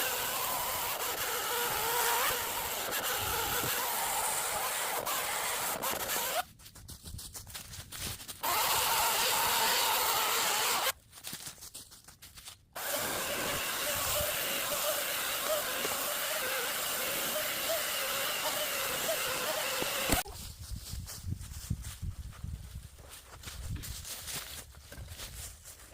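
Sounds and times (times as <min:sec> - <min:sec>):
power saw cutting wood: 0:00.0 - 0:06.4, 0:08.4 - 0:10.9, 0:12.8 - 0:20.3.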